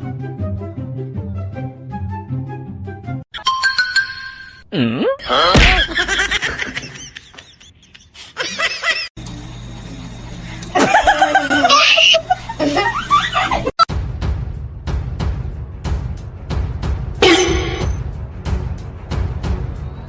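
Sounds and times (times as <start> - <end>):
music: 0.0 - 3.3, 13.2 - 20.0
people laughing: 5.4 - 9.1, 10.7 - 13.9.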